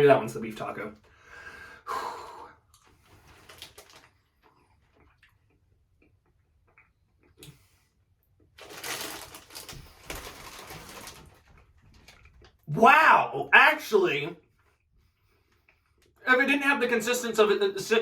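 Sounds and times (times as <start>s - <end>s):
person chewing: 2.7s - 7.7s.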